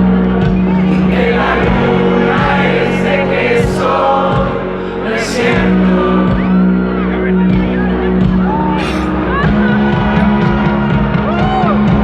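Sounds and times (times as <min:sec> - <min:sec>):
live rock band playing: 0:00.0 - 0:12.0
many voices singing together: 0:00.7 - 0:07.1.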